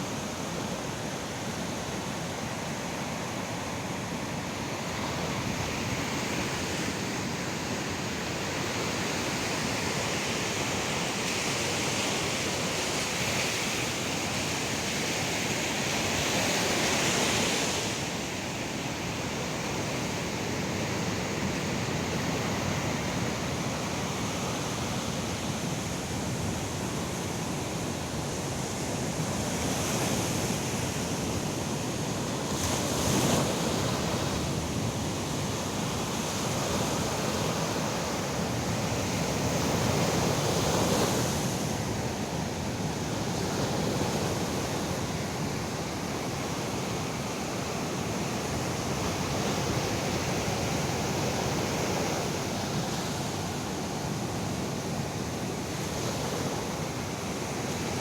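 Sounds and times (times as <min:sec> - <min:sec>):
ocean waves breaking on beach: 0:00.0 - 0:58.0.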